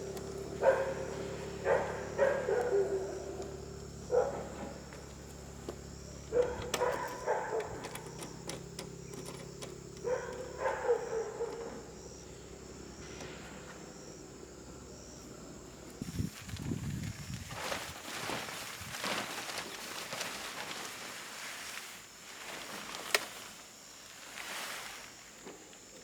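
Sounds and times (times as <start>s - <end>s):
steady low hum: 0.0s - 18.6s
dog barking: 0.4s - 4.9s, 6.2s - 8.1s, 10.0s - 11.9s.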